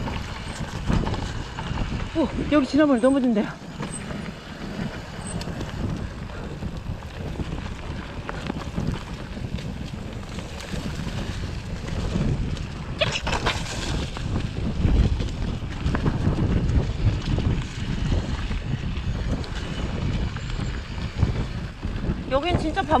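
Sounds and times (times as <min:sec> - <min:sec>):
mountain bike rumble and rattle: 0:00.0 - 0:23.0
wind buffeting microphone: 0:00.0 - 0:23.0.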